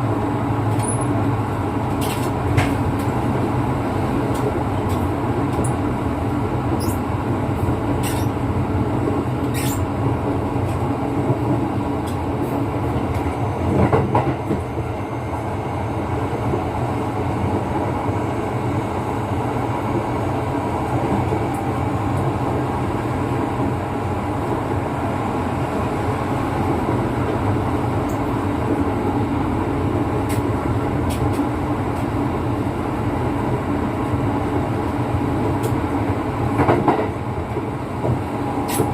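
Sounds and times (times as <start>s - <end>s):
train wheels rumbling on rails: 0.0s - 38.9s
train clatter: 0.6s - 3.4s, 4.0s - 8.4s, 10.6s - 14.8s, 30.1s - 32.2s, 35.4s - 38.9s.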